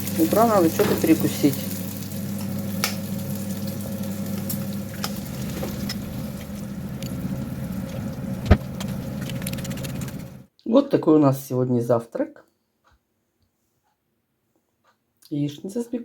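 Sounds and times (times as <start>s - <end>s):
food sizzling in a frying pan: 0.0s - 8.3s
low hum: 2.3s - 10.5s.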